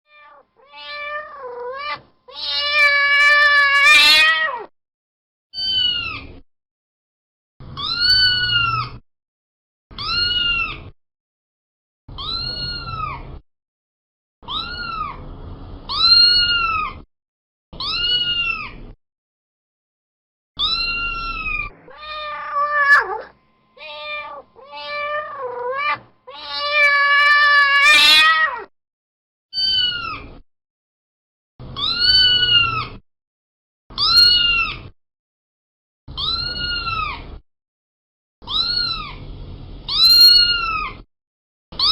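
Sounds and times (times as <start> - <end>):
cat meowing: 0.1 - 4.7, 10.0 - 10.9, 12.2 - 13.2, 14.5 - 15.2, 15.9 - 17.0, 17.8 - 18.8, 20.6 - 28.7, 29.6 - 30.3, 31.8 - 33.0, 34.0 - 34.9, 36.2 - 37.2, 38.5 - 39.2, 39.9 - 41.0.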